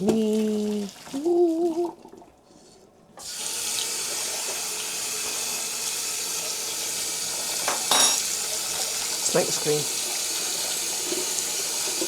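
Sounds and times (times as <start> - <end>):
tap water running into sink: 3.2 - 12.0.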